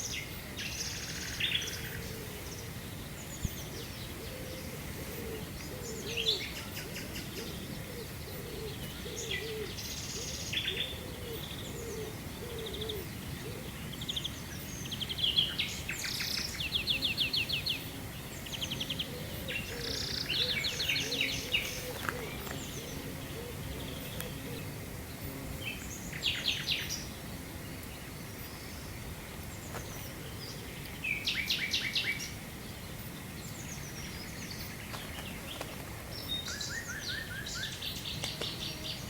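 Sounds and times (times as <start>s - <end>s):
songbirds trilling and chirping: 0.0s - 39.0s
dove cooing: 1.7s - 2.8s, 3.6s - 13.9s, 16.9s - 25.6s.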